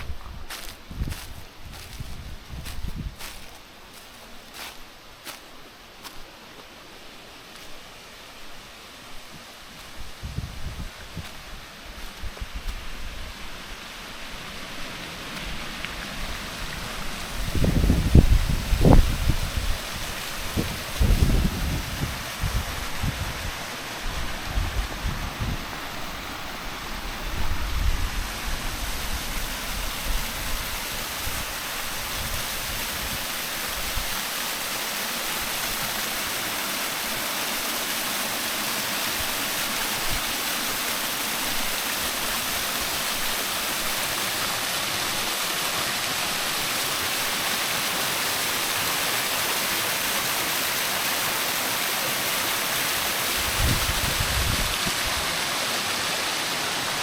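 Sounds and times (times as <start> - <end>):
waterfall rushing: 0.0 - 10.0, 13.3 - 57.0.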